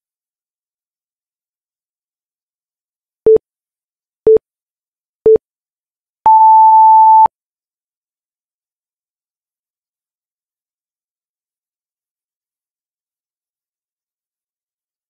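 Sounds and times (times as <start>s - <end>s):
long high timer beep: 6.3s - 7.3s
short low timer beeps: 6.3s - 7.3s.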